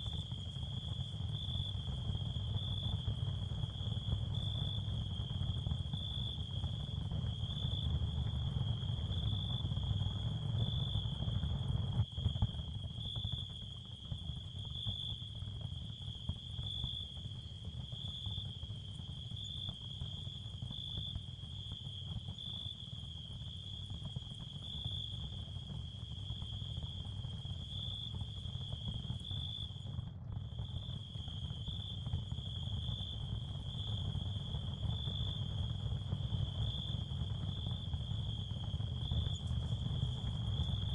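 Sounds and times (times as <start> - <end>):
crickets chirring: 30.6 - 40.9.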